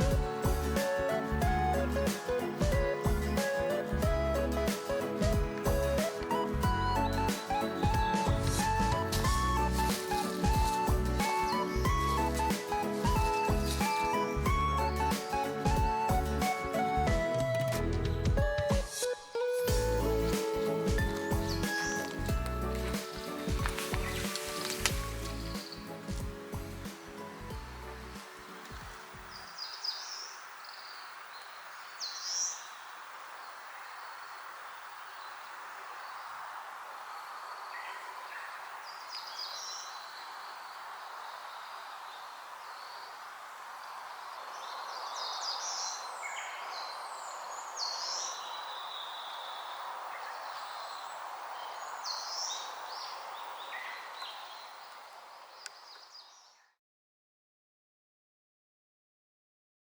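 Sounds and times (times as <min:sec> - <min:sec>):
birds giving sharp calls: 0:19.7 - 0:26.1.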